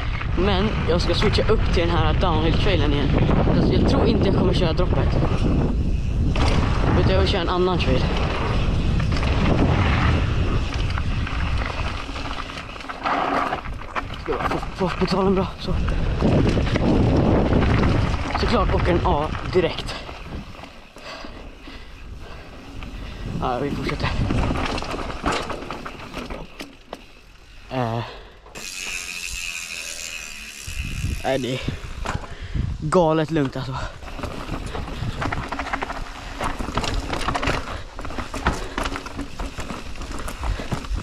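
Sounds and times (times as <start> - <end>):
wind buffeting microphone: 0.0 - 12.8, 13.5 - 25.3, 28.6 - 41.0
mountain bike rattling on dirt: 0.0 - 41.0
rider voice: 0.3 - 5.4, 6.8 - 8.3, 14.2 - 16.1, 18.3 - 20.2, 23.3 - 24.3, 27.7 - 28.3, 31.1 - 32.0, 32.8 - 34.0
bike freehub ratcheting: 24.1 - 32.8.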